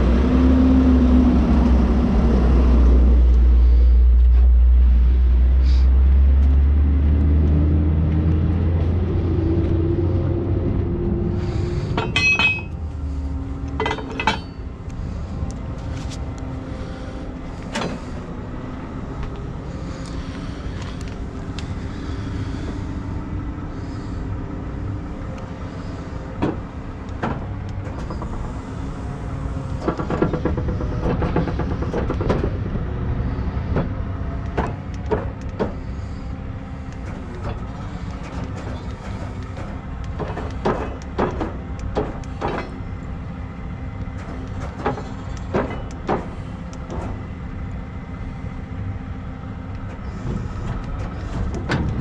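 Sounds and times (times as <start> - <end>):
heavy truck engine rumbling: 0.0 - 52.0
metal clanks and rattles: 11.5 - 16.2, 29.6 - 32.8, 36.9 - 43.0, 44.1 - 47.2, 49.8 - 52.0.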